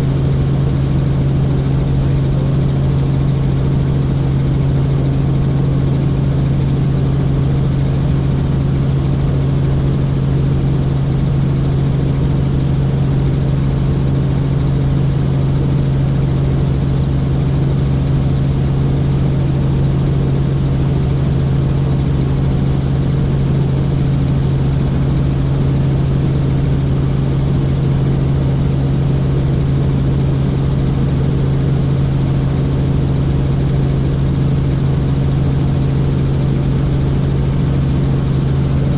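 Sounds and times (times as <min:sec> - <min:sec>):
helicopter drone: 0:00.0 - 0:38.9.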